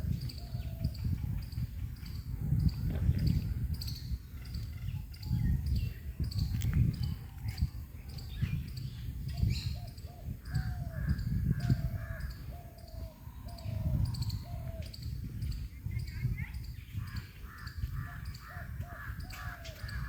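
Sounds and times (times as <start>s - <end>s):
small birds chirping: 0.0s - 20.0s
crows cawing: 10.5s - 13.5s, 17.4s - 20.0s.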